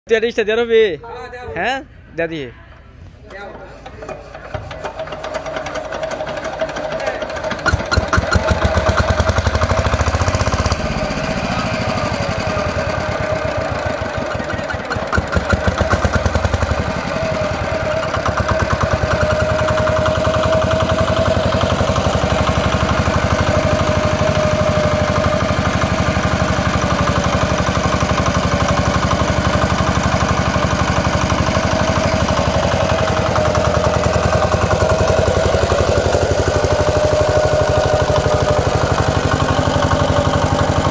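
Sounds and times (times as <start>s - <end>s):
diesel generator knocking: 4.3s - 40.9s.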